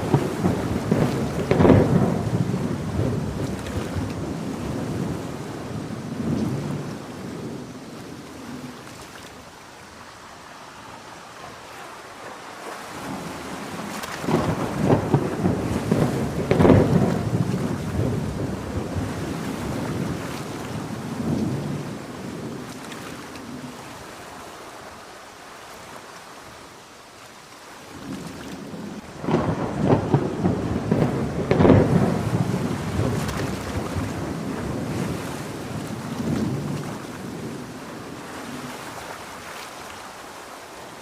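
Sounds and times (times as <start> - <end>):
thunder rumbling: 0.0 - 8.7, 13.0 - 22.8, 28.1 - 38.8
steady rain: 0.0 - 41.0.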